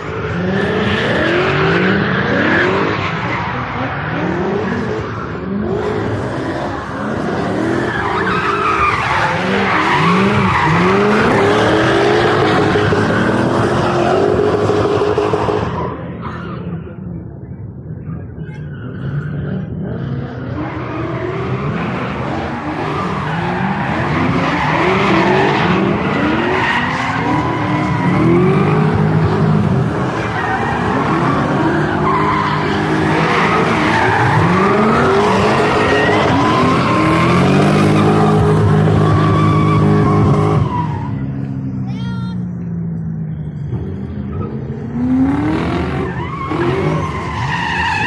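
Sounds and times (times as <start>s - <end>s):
car engine revving: 0.0s - 16.2s, 18.9s - 41.8s, 42.6s - 48.0s
tyres squealing: 22.6s - 41.4s.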